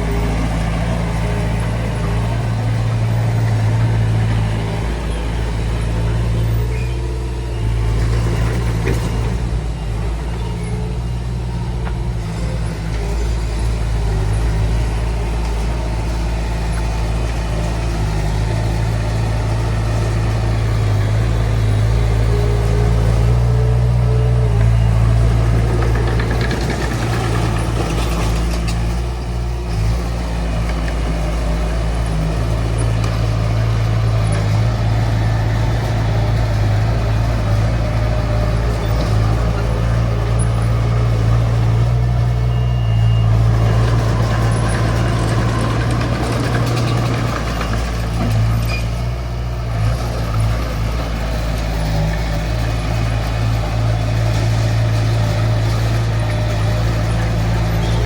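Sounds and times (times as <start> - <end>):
bulldozer diesel engine drone: 0.0 - 58.0.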